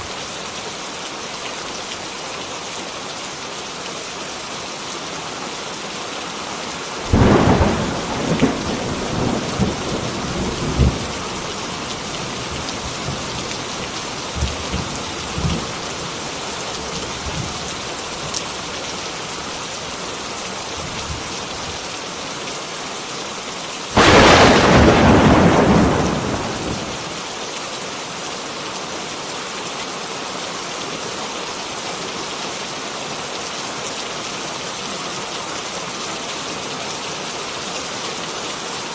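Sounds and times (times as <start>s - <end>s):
heavy rain: 0.0s - 38.9s
rumbling thunder: 7.1s - 13.5s, 24.0s - 27.2s
thunder clap: 24.0s - 27.2s.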